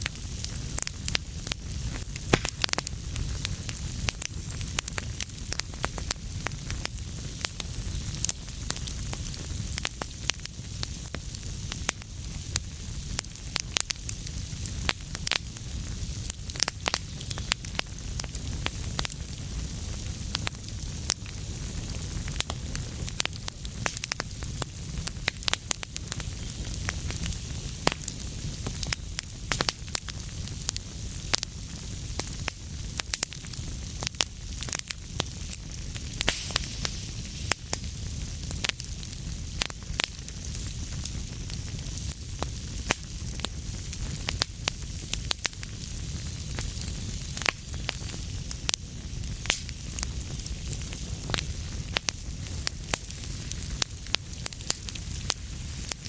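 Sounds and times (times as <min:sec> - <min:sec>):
fire crackles and pops: 0:00.0 - 0:56.0
fire flames rumbling and hissing: 0:00.0 - 0:56.0.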